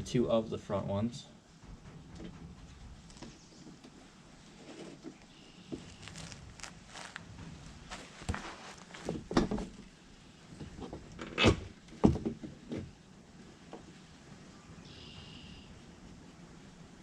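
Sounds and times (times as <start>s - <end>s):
plastic shield knocking and scraping: 7.3s - 9.8s.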